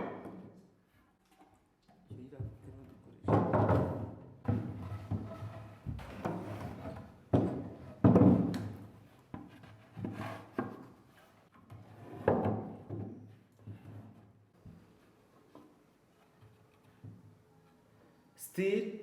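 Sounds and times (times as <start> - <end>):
wooden knocks: 3.3 - 8.8.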